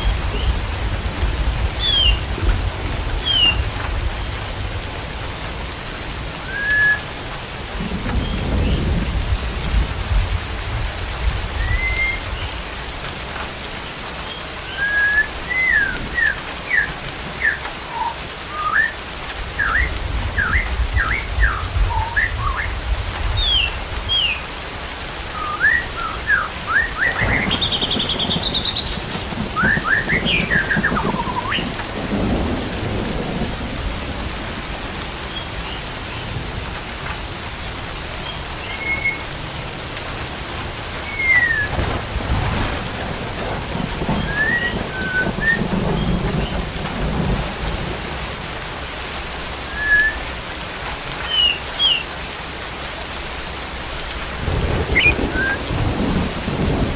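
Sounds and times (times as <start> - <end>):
thunder rumble: 0.0 - 13.5, 19.2 - 24.3, 25.0 - 37.3, 40.2 - 50.2, 53.8 - 56.9
rain hissing: 0.0 - 56.9
bird whistling: 6.5 - 7.0, 14.7 - 19.0, 19.6 - 22.7, 25.4 - 31.7, 38.7 - 39.2, 41.0 - 41.7, 44.2 - 45.8, 49.7 - 50.2, 54.9 - 55.6.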